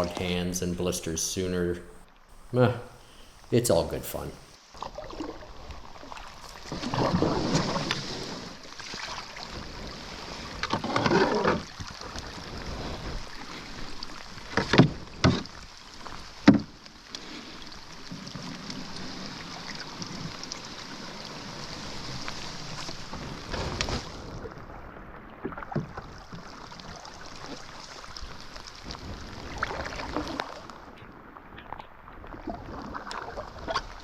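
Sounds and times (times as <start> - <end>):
rain hiss: 0.0 - 4.7, 15.5 - 24.4
canoe paddle splashing water: 1.9 - 34.0.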